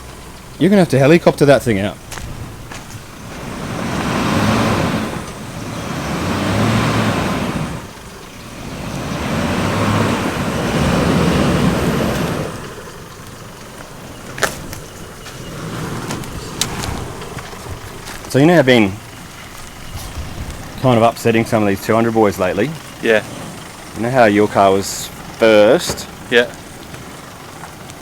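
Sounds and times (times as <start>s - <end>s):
vehicle engine revving: 0.0s - 28.0s.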